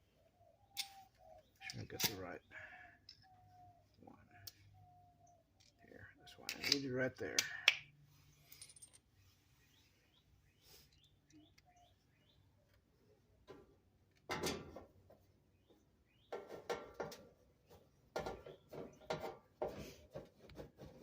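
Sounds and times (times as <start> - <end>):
handling dryer parts and screws: 8.4 - 9.2
sharp knocks and rattles: 16.2 - 21.0.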